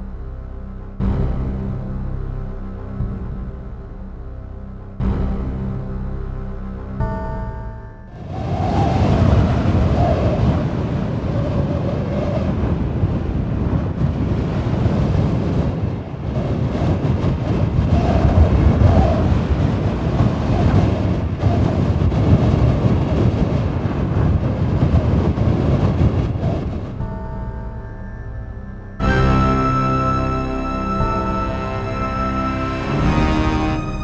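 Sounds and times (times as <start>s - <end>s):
wind buffeting microphone: 8.1s - 34.0s.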